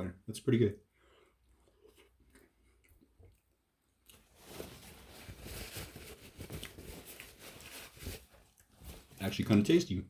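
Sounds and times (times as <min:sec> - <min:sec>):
person chewing sandwich: 0:01.1 - 0:04.6, 0:06.2 - 0:07.5, 0:08.2 - 0:09.1.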